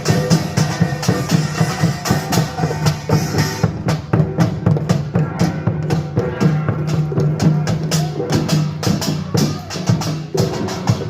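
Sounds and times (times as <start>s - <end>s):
drums playing fast rhythm: 0.0s - 11.0s.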